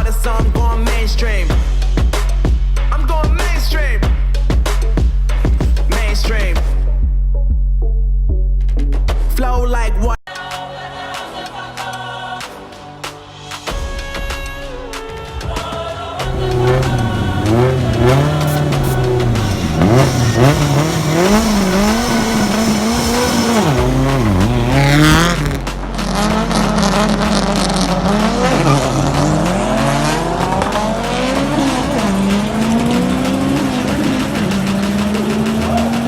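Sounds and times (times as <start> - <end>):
drag race engines revving: 16.2 - 36.0
high screech: 16.3 - 25.6.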